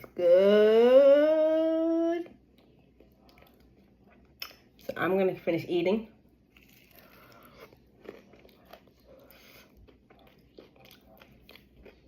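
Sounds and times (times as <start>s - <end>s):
person chewing food: 2.4s - 4.8s, 6.5s - 12.0s.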